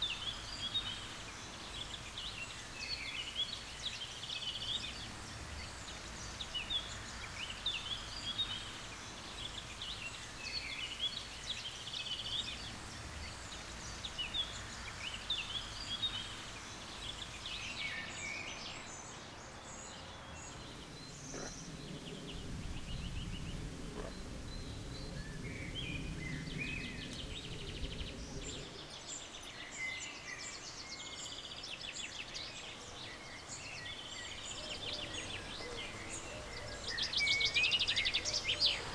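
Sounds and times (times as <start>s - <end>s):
songbirds chirping and trilling: 0.0s - 38.9s
outdoor hush: 4.7s - 29.3s, 34.3s - 38.9s
low rumble: 20.4s - 28.8s.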